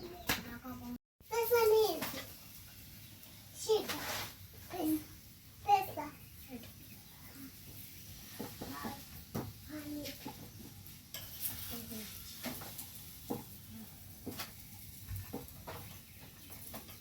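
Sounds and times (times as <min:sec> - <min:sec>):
faint sizzle: 0:01.2 - 0:17.0
utensils scraping a pan: 0:03.7 - 0:04.8, 0:10.0 - 0:13.6.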